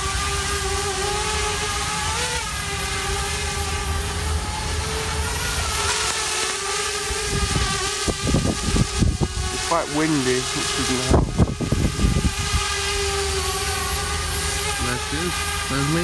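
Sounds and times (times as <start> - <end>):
drone propeller whine: 0.0 - 16.0
wind buffeting microphone: 7.0 - 16.0.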